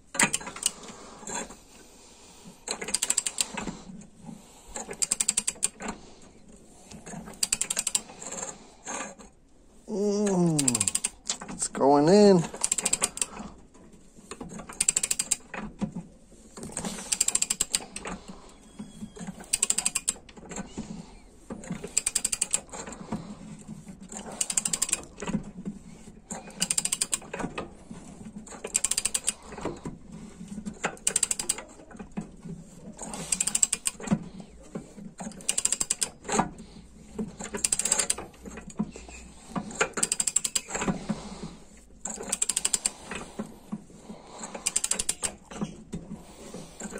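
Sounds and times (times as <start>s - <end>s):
socket ratchet clicking: 2.8s - 3.6s, 4.9s - 5.8s, 7.3s - 8.0s, 10.6s - 11.4s, 12.5s - 13.3s, 14.7s - 15.5s, 17.1s - 18.0s, 19.4s - 20.2s, 22.0s - 22.7s, 24.4s - 25.1s, 26.6s - 27.2s, 28.6s - 29.4s, 31.0s - 31.6s, 33.2s - 34.0s, 35.4s - 36.2s, 37.6s - 38.2s, 40.0s - 40.8s, 42.1s - 43.0s, 44.6s - 45.4s.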